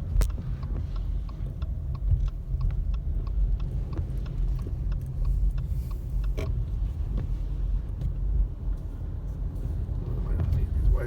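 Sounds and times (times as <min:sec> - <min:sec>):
road and engine rumble: 0:00.0 - 0:11.0
faint short ticks: 0:00.1 - 0:07.3.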